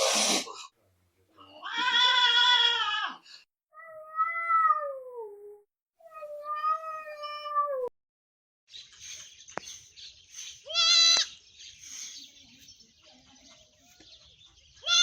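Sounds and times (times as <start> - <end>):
cat meowing: 3.8 - 5.4, 6.0 - 7.9.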